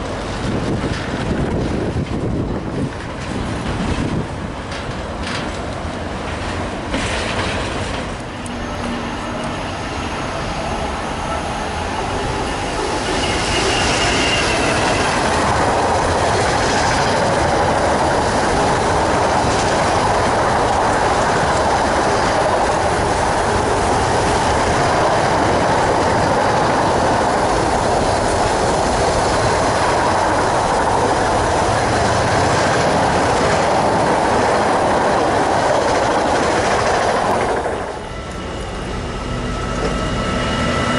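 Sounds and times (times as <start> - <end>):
train wheels clattering over rails: 0.0 - 8.6, 12.1 - 38.0
thin wheel squeal: 12.4 - 15.2.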